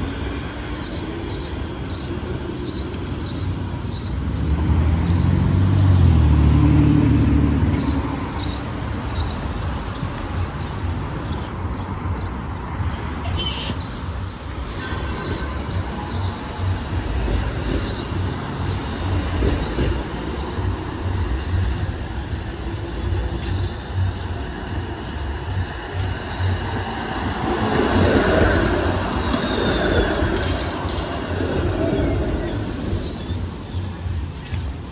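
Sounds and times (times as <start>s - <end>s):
streetcar rumbling on rails: 0.0s - 34.9s
thin high wheel squeal: 13.3s - 20.0s.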